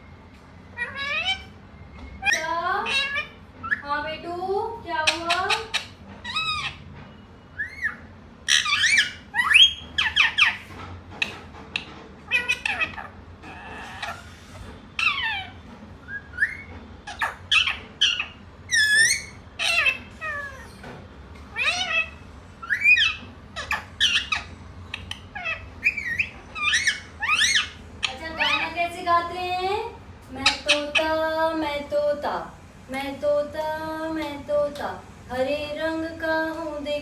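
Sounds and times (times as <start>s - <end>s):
parrot squawking: 0.8s - 1.6s, 2.2s - 3.9s, 5.0s - 6.8s, 7.5s - 20.9s, 21.5s - 29.1s, 30.3s - 31.3s.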